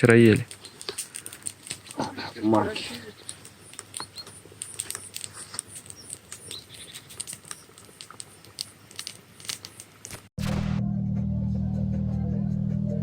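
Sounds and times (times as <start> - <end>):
light crackling and snapping: 0.0 - 10.3.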